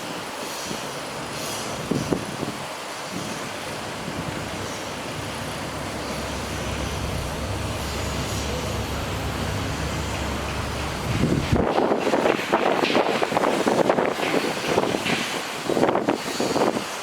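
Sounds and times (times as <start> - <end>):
steady rushing noise: 0.0 - 17.0
loud choppy engine sound: 1.0 - 15.2
diesel truck engine running: 3.8 - 11.8.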